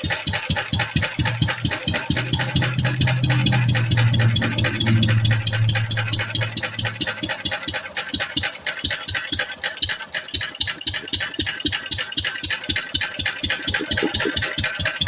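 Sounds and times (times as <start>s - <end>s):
stationary engine clattering: 0.0s - 15.0s
steady low hum: 0.9s - 7.9s.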